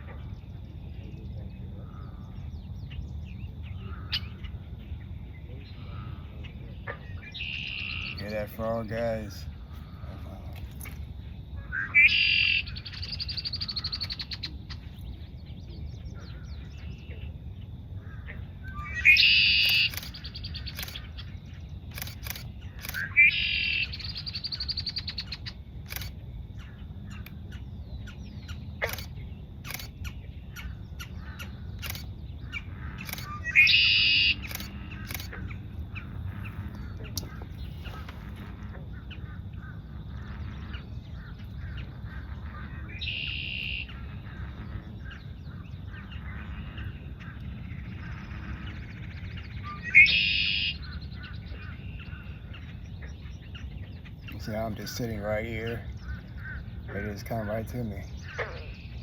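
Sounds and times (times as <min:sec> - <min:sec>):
blackbird singing buzzy trill: 0:00.0 - 0:10.9, 0:11.6 - 0:38.0, 0:40.7 - 0:59.0
sharp clicks: 0:13.8 - 0:14.4, 0:19.6 - 0:21.1, 0:21.9 - 0:23.1, 0:25.8 - 0:26.2, 0:28.8 - 0:30.0, 0:31.8 - 0:32.1, 0:33.0 - 0:33.4, 0:34.3 - 0:35.5.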